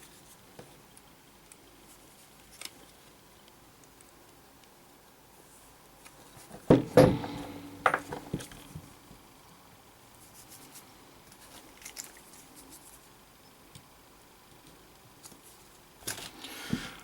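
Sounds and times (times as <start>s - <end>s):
metal tools clattering: 6.9s - 8.4s.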